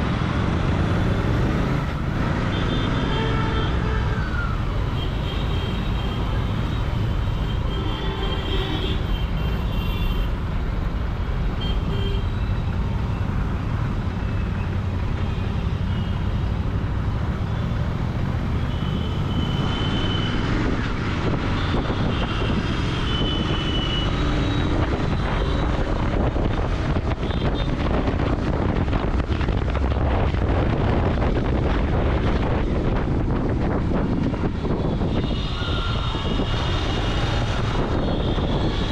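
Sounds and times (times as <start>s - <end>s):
road and traffic noise: 0.0s - 38.9s
motorcycle engine and exhaust: 11.5s - 38.9s.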